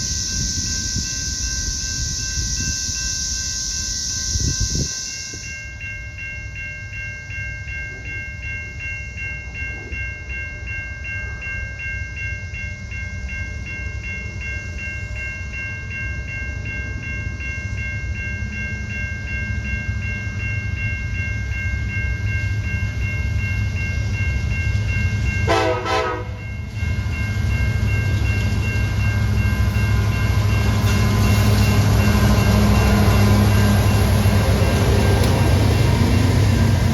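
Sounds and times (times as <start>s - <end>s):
railroad crossing bell ringing: 0.0s - 36.9s
train rumbling: 0.0s - 36.9s
train horn blast: 25.4s - 26.4s.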